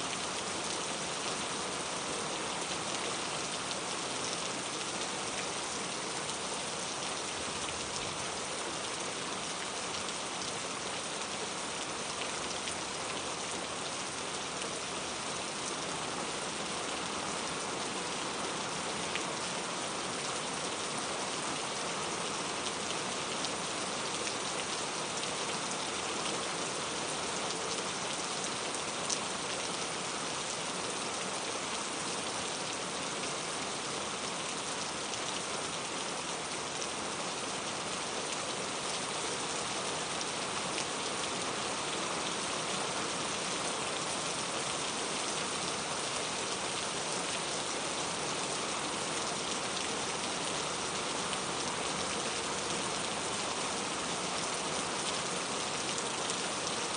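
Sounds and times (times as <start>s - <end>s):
rain pattering on surface: 0.1s - 56.9s.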